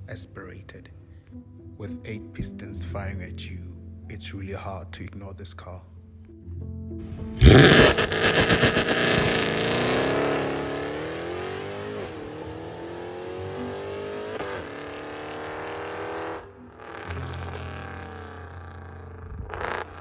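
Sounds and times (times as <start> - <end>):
car engine accelerating hard: 7.4 - 20.0.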